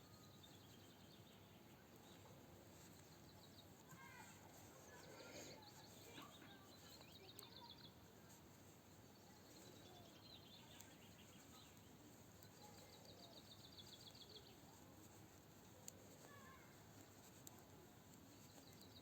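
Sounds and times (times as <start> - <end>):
outdoor background hiss: 0.0 - 19.0
faint sharp clicks: 9.5 - 19.0.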